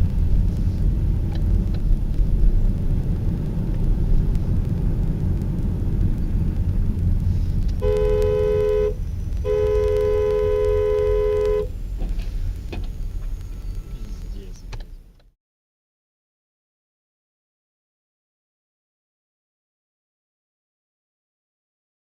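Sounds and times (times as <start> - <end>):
road and engine rumble: 0.0 - 15.4
two-tone car horn honking: 7.8 - 11.8.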